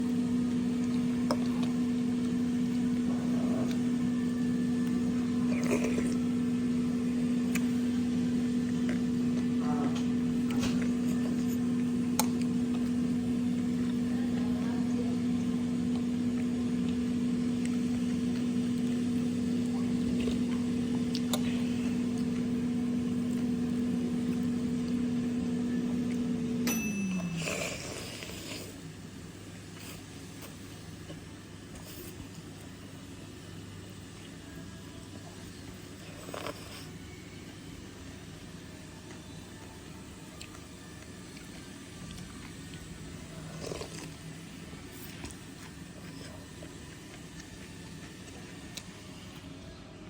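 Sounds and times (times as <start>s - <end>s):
low motor hum: 0.0s - 29.4s.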